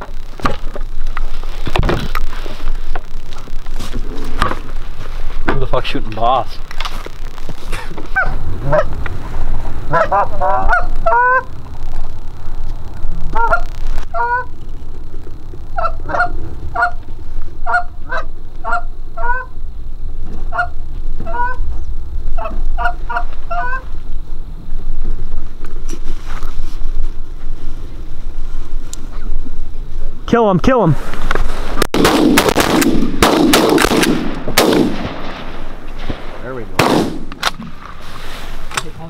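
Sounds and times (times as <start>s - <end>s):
steady low rumble: 0.0s - 39.0s
geese honking: 7.6s - 11.6s, 13.3s - 14.6s, 15.7s - 19.6s, 20.4s - 21.8s, 22.4s - 24.0s.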